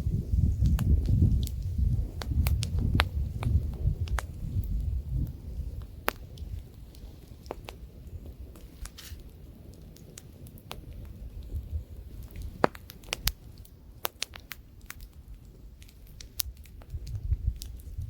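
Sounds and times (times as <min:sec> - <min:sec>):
campfire crackling and popping: 0:00.0 - 0:18.0
light wind rumble: 0:00.0 - 0:18.0.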